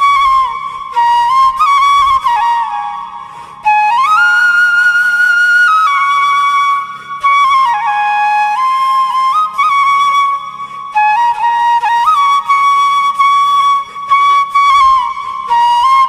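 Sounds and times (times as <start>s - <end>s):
solo flute melody: 0.0s - 16.0s.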